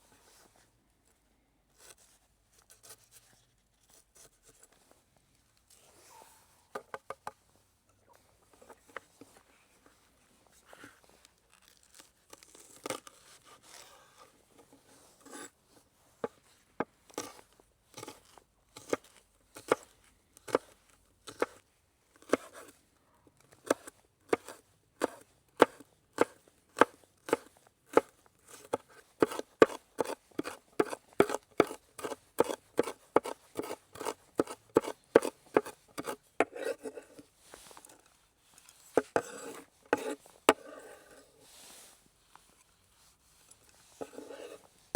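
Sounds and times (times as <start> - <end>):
knife chopping on cutting board: 28.7 - 36.7.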